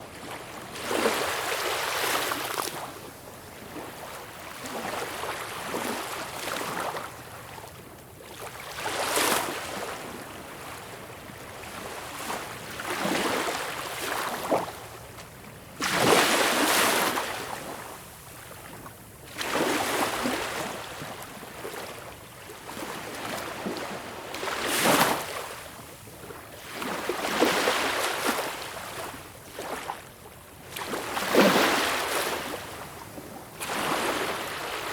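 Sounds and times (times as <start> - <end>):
small waves washing up shore: 8.2 - 34.9.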